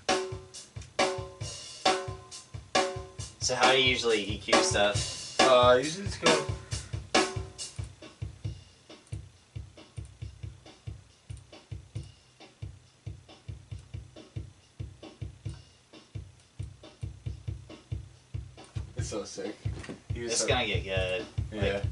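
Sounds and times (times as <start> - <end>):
kick drum thumps: 4.7 - 21.9.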